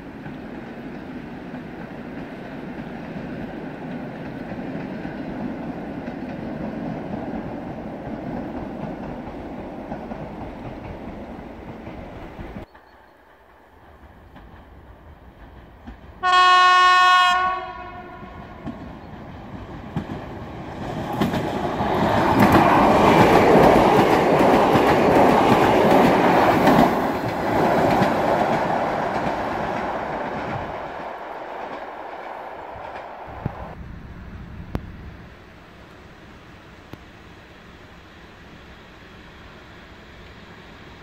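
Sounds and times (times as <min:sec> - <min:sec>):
train running past on rails: 0:00.0 - 0:41.0
train horn blast: 0:16.2 - 0:18.8.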